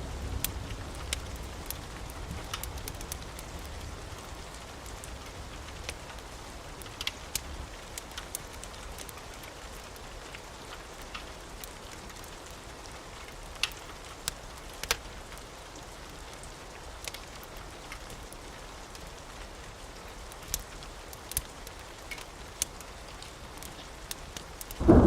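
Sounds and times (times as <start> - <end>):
wood fire crackling: 0.0 - 25.0
rain hissing: 24.7 - 25.0.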